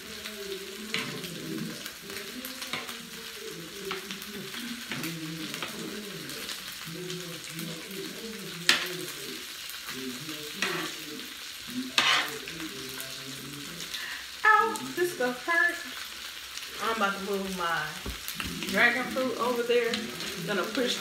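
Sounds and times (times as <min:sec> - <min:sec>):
wordless vocal sounds: 0:00.0 - 0:15.9
food sizzling in oil: 0:00.0 - 0:21.0
fork scraping griddle: 0:00.8 - 0:03.2, 0:08.6 - 0:09.2, 0:10.4 - 0:11.1, 0:11.8 - 0:12.7.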